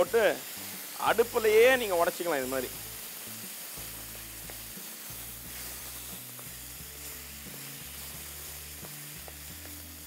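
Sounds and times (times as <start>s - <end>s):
tomatoes sizzling in hot fat: 0.0s - 10.0s.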